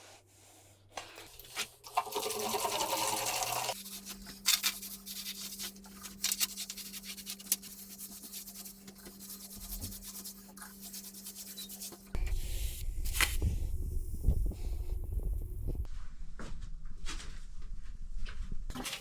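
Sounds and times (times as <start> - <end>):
brush scraping hard surface: 3.7 - 13.6
low rumbling: 12.2 - 16.3.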